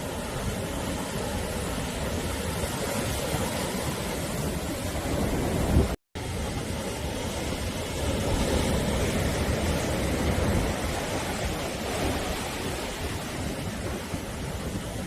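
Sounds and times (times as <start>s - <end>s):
sea surf washing ashore: 0.0s - 15.0s.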